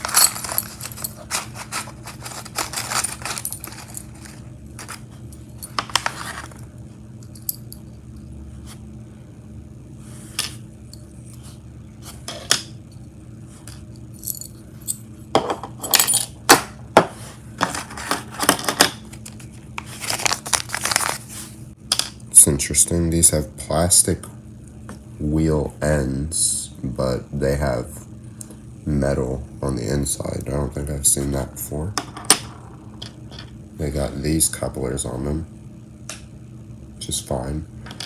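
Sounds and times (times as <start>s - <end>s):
small metal parts clinking: 0.0s - 5.0s.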